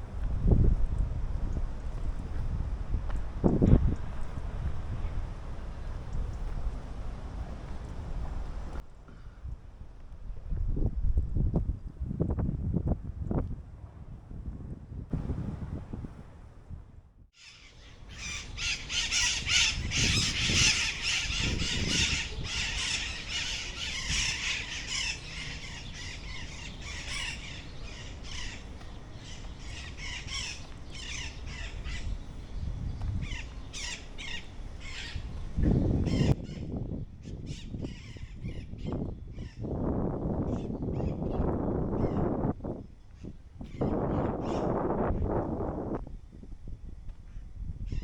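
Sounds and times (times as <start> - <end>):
wind gusts on microphone: 0.0 - 48.0
flock of birds squawking: 17.4 - 32.1, 36.1 - 36.4.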